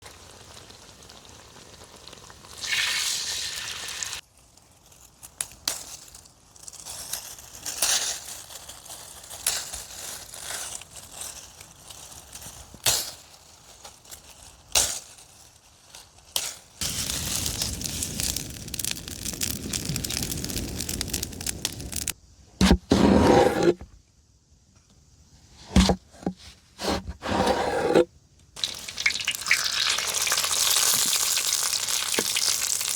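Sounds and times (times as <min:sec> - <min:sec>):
food frying and sizzling: 0:00.0 - 0:04.2, 0:16.8 - 0:22.2, 0:28.6 - 0:32.9.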